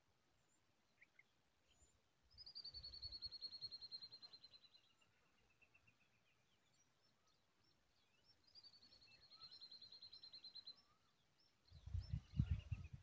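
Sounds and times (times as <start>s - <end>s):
faint bird chirps: 0.4s - 13.0s.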